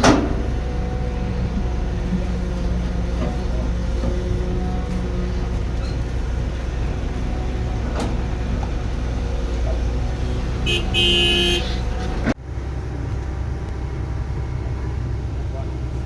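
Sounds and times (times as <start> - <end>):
machinery engine droning: 0.0 - 16.0
vehicle horn: 10.6 - 12.2.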